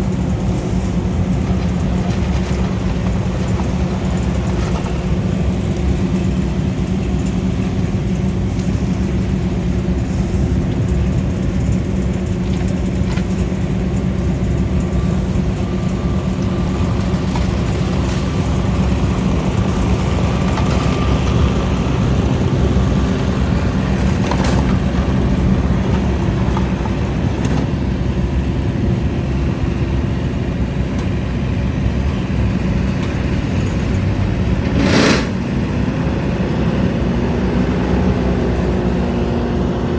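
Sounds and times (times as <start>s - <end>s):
brush chipper engine: 0.0s - 39.9s
skid steer engine: 0.0s - 39.9s.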